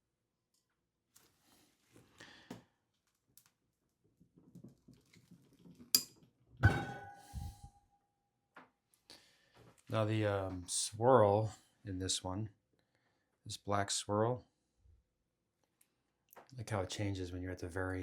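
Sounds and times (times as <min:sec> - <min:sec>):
metallic ringing tone: 0:06.6 - 0:07.7.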